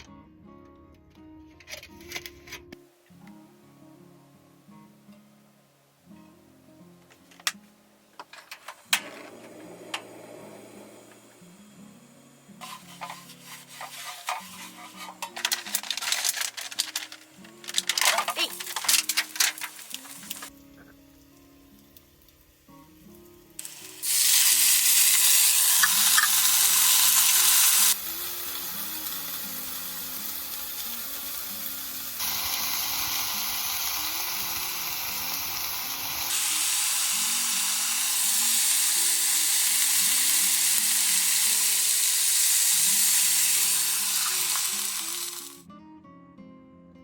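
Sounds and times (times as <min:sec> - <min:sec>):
soft background music: 0:00.0 - 0:47.0
food sizzling in a pan: 0:09.7 - 0:45.6.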